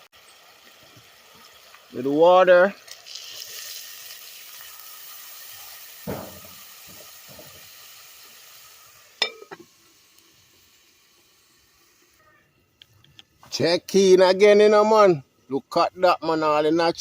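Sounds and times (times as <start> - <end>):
hot pot sizzling: 0.0 - 16.3
dull knock: 6.1 - 7.6.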